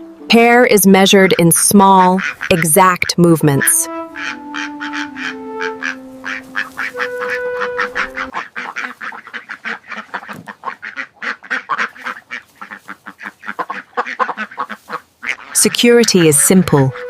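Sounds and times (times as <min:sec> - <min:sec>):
held background music notes: 0:00.0 - 0:08.4, 0:15.6 - 0:17.0
ducks quacking: 0:01.3 - 0:17.0.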